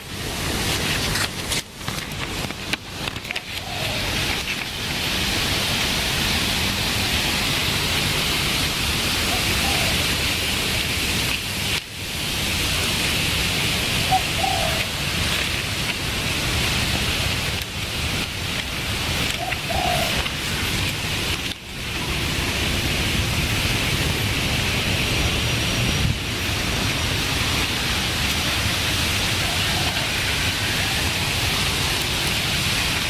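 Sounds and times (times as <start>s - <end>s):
falling water hiss: 0.0s - 33.0s
low bird calls: 3.2s - 4.6s, 9.2s - 10.2s, 13.9s - 15.4s, 19.1s - 20.4s.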